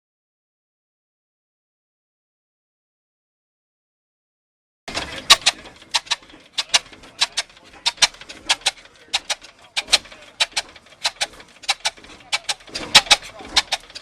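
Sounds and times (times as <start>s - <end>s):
old stationary engine clacking: 4.9s - 14.0s.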